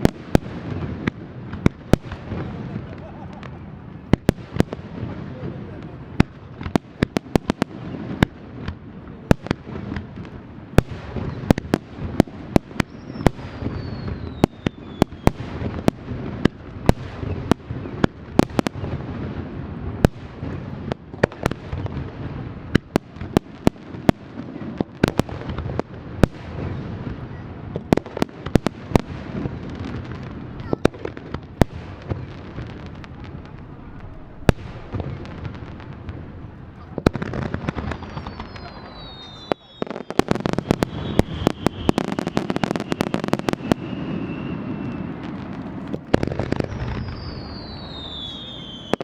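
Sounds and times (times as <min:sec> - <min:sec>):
fireworks bursting: 0:00.0 - 0:49.0
firework whistle falling in pitch: 0:12.8 - 0:15.4, 0:37.8 - 0:45.4, 0:46.6 - 0:49.0.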